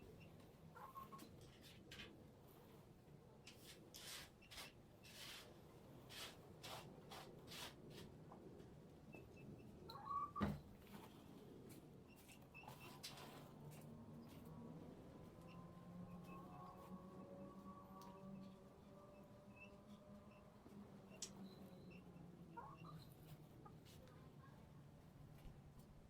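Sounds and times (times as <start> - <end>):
scratchy cleaning strokes: 3.6 - 8.1.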